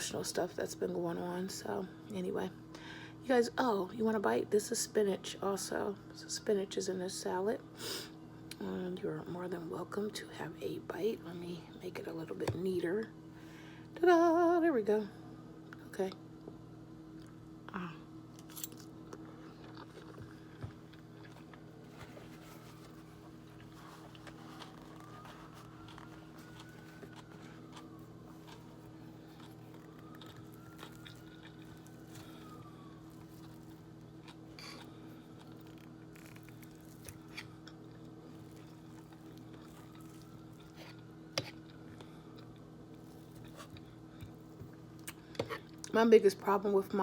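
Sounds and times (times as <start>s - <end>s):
steady electrical hum: 0.0s - 47.0s
chewing salad: 18.3s - 45.9s.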